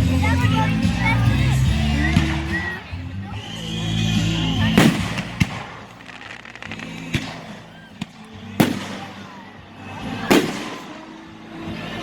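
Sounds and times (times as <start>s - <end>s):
firework crackles: 3.4s - 11.4s
firework bangs: 3.7s - 9.5s, 10.2s - 11.3s.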